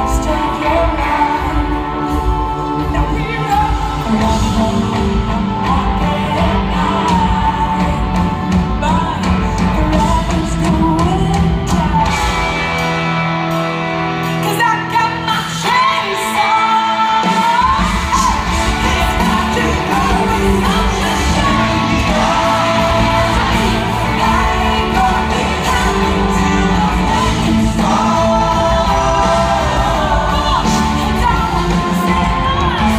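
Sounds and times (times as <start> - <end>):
person singing lead vocal: 0.0 - 13.2, 14.2 - 32.9
bass and drums: 0.0 - 32.9
guitars: 0.0 - 32.9.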